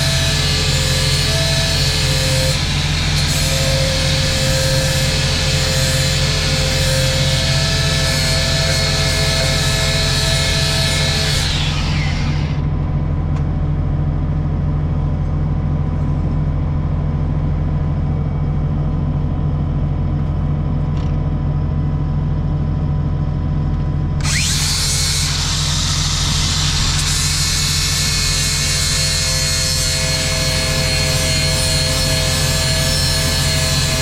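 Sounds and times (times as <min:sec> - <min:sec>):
grinder grinding steel: 0:00.0 - 0:12.7, 0:24.2 - 0:34.0
low hum: 0:11.6 - 0:28.4.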